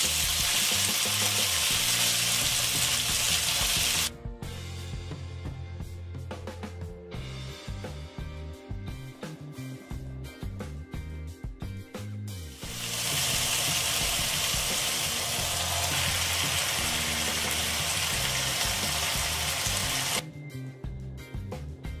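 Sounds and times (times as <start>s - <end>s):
vegetables sizzling in hot oil: 0.0s - 4.1s, 12.6s - 20.2s
background music: 0.0s - 22.0s.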